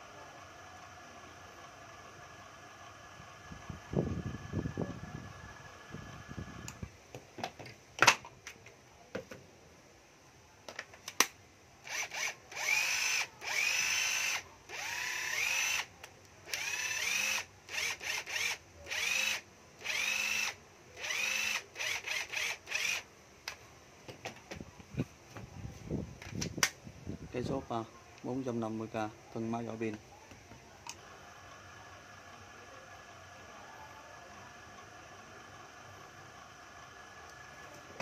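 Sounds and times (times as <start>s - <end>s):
cordless drill whining: 11.8s - 15.9s, 16.5s - 23.0s.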